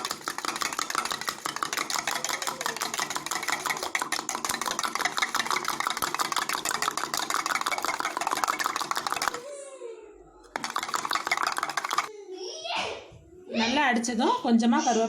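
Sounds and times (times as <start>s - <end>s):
utensil clinking against a tumbler: 0.0s - 9.5s, 10.5s - 12.1s.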